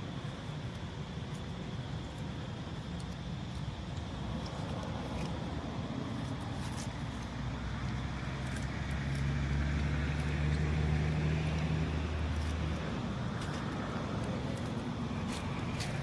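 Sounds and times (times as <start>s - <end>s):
vehicle engine passing: 6.1s - 16.0s.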